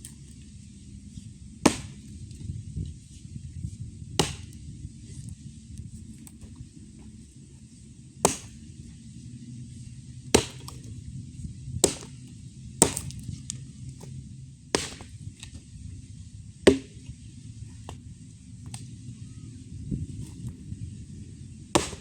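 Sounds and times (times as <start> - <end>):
axe chopping wood: 1.6 - 2.2, 4.2 - 4.6, 8.2 - 8.7, 10.3 - 10.9, 11.8 - 13.3, 14.0 - 15.6, 16.6 - 17.1, 17.7 - 18.9, 20.1 - 20.6, 21.7 - 22.0.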